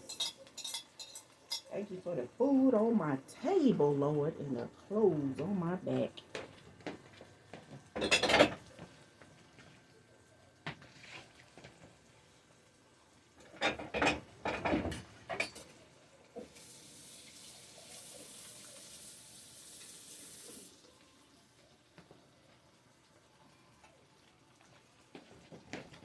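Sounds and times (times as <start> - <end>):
dishes and utensils clattering: 0.0 - 1.7, 7.6 - 9.0, 13.4 - 15.8
kitchen tap running: 0.0 - 26.0.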